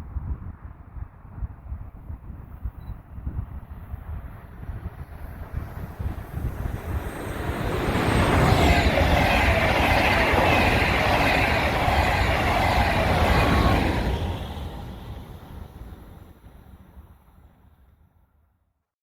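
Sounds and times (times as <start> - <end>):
train wheel and rail noise: 3.5 - 17.7.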